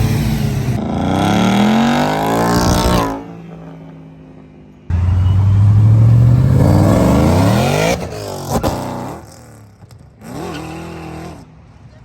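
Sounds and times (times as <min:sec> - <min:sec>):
car engine accelerating hard: 0:04.9 - 0:11.5.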